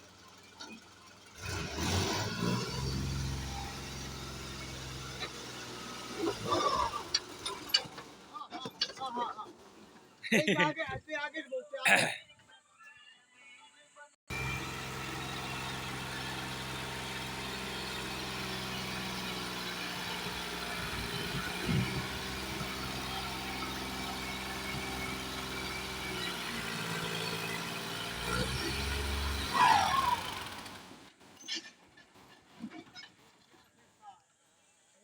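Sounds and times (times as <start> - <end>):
tractor diesel engine running: 0.0 - 10.2, 14.3 - 31.3.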